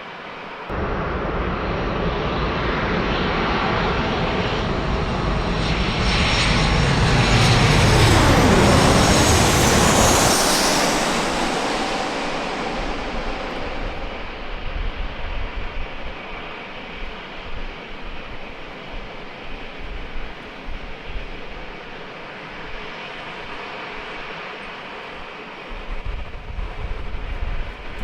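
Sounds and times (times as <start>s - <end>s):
jet airliner passing: 0.0s - 28.0s.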